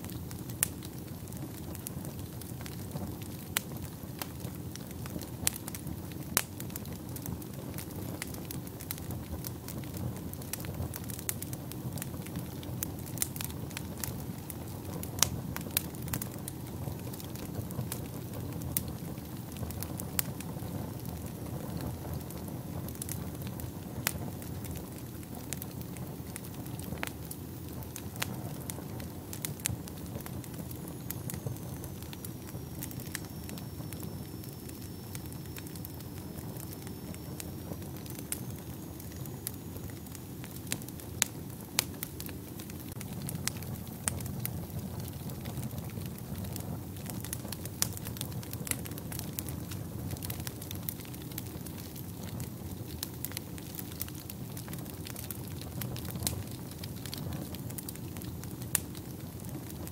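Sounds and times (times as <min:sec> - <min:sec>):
fire crackling and popping: 0:00.0 - 0:59.9
fire rumbling: 0:00.0 - 0:59.9
faint high whistle: 0:30.8 - 0:40.2.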